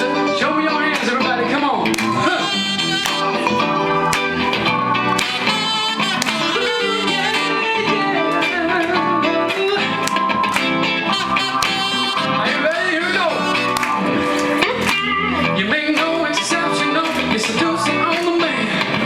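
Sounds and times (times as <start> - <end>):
plucked guitar: 0.0 - 19.0
wavering melody: 2.0 - 15.6.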